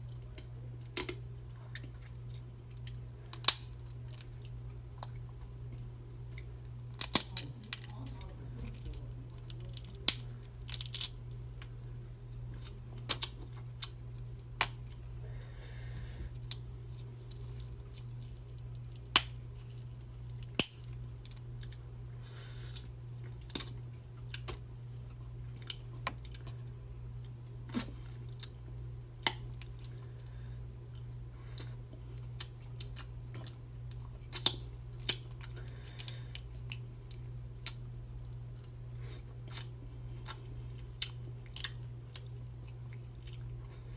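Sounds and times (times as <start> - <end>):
steady low hum: 0.0 - 43.9
seafood shells cracking: 2.7 - 4.5, 5.8 - 8.0, 8.6 - 11.7
wet chewing: 29.2 - 43.9.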